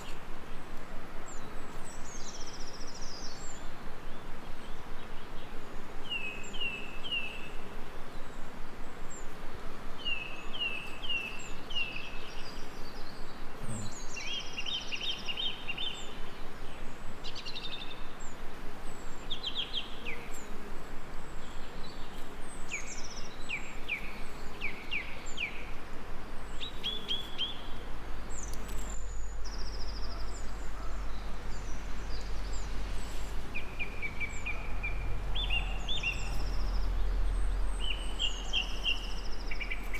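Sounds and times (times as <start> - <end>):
background hiss: 0.0 - 39.9
songbirds chirping and trilling: 0.0 - 39.9
low hum: 27.8 - 39.5.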